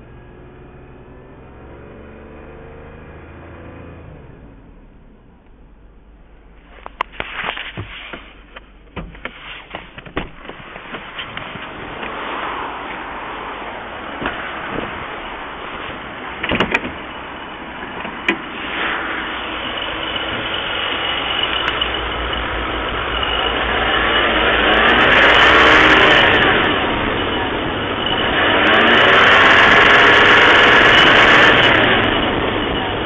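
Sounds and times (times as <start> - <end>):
car engine revving with a knock: 7.0 - 12.3, 14.2 - 15.0.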